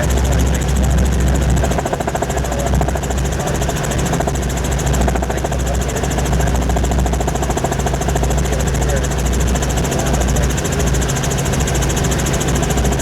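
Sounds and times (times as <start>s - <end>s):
helicopter rotor and engine drone: 0.0s - 13.0s.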